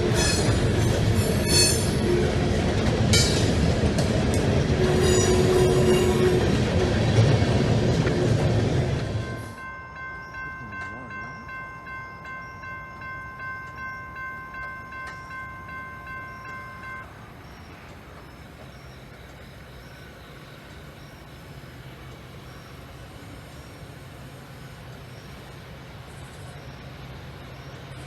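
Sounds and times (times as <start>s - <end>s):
crossing bell ringing rapidly: 0.0s - 2.2s, 9.1s - 17.2s.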